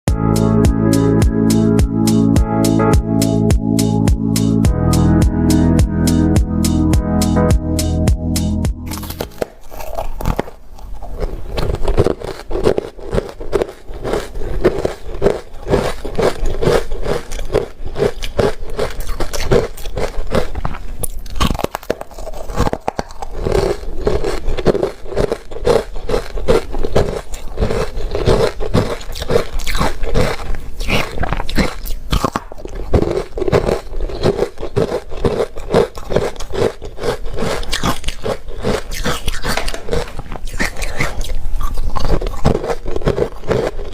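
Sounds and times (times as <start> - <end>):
crunching and chewing ice: 8.9 - 43.9.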